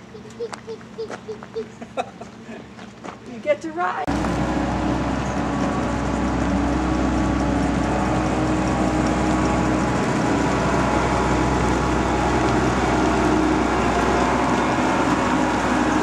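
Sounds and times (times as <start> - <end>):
farm machine engine droning: 4.1 - 16.0.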